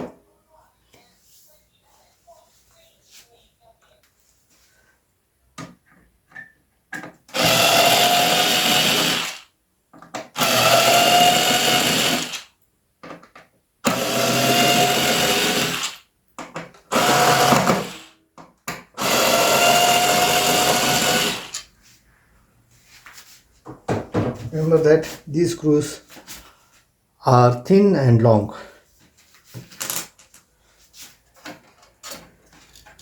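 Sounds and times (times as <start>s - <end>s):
electric screwdriver motor whine: 7.4s - 9.4s, 10.4s - 12.4s, 13.9s - 16.0s, 16.9s - 18.1s, 19.0s - 21.6s.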